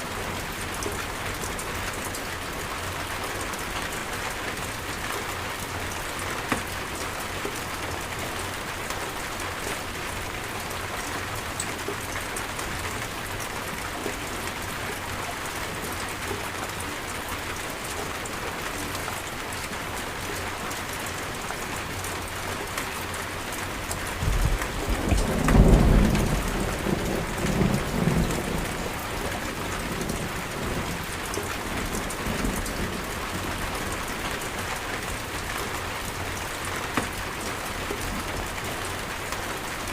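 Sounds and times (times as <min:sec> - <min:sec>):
heavy rain pattering: 0:00.0 - 0:39.9
thunder rumbling: 0:24.2 - 0:31.2.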